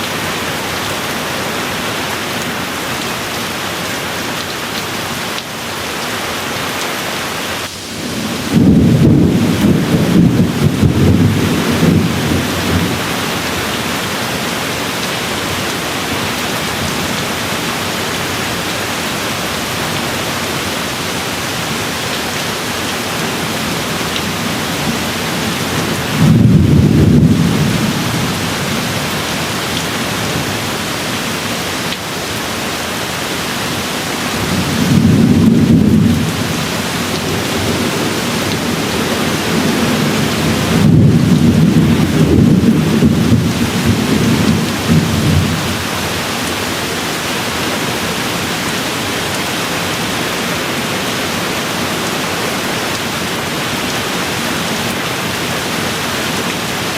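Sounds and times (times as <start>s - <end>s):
steady rain falling: 0.0s - 56.9s
thunder rumbling: 7.7s - 14.1s, 23.1s - 31.0s, 34.3s - 46.1s.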